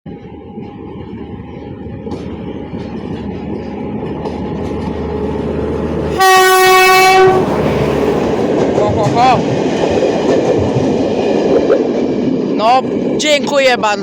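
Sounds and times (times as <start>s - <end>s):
train rumbling on rails: 0.1s - 14.0s
locomotive horn blast: 6.1s - 7.9s.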